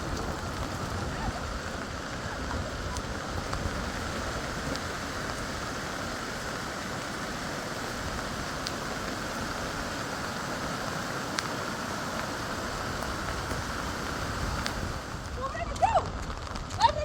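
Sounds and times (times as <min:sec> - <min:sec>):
heavy rain: 0:00.0 - 0:17.0
raindrops ticking on hard surface: 0:00.0 - 0:17.0.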